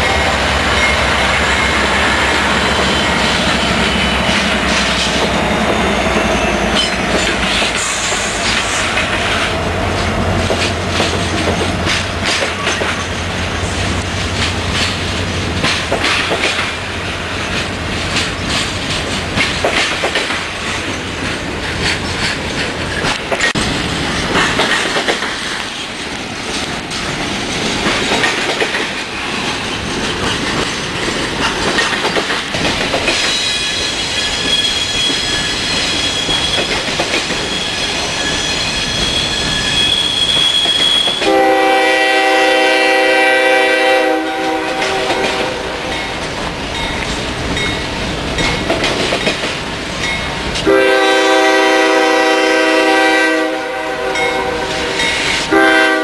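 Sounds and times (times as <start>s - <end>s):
train wheel clatter: 0.0s - 42.2s, 44.5s - 51.6s, 54.2s - 56.0s
thin high squeal: 33.3s - 36.8s, 37.4s - 41.2s
locomotive air horn blasts: 41.2s - 45.9s, 50.6s - 56.0s.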